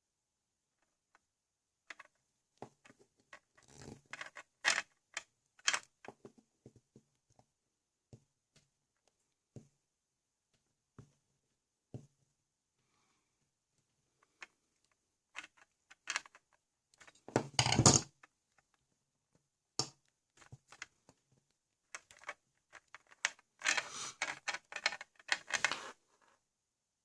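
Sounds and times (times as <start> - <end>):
plastic toy bricks clattering: 1.9 - 2.2, 3.3 - 5.9, 15.4 - 18.3, 21.9 - 25.9.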